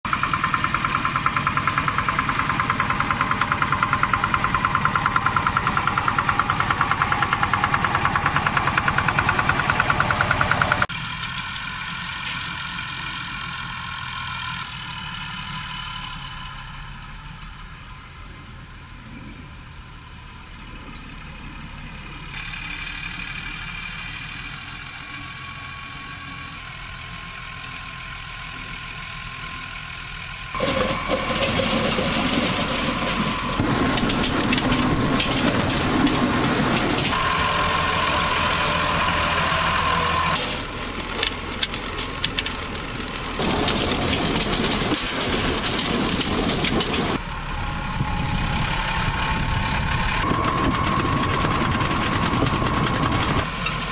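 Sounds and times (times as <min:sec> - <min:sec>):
tractor engine humming: 0:00.0 - 0:53.9
harvester clattering rattle: 0:00.1 - 0:10.9, 0:30.6 - 0:47.2, 0:49.2 - 0:53.9.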